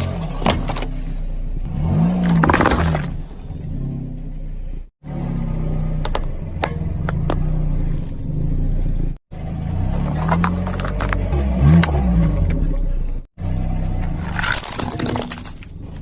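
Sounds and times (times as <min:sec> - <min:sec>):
car engine running slowly: 0:00.0 - 0:16.0
objects cracking under tyres: 0:02.1 - 0:03.2, 0:10.0 - 0:12.8, 0:13.7 - 0:16.0.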